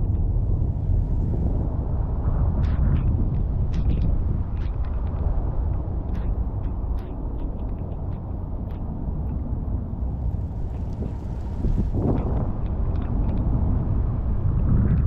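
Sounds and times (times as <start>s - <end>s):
heavy low rumble: 0.0s - 15.0s
rain falling: 10.2s - 12.0s.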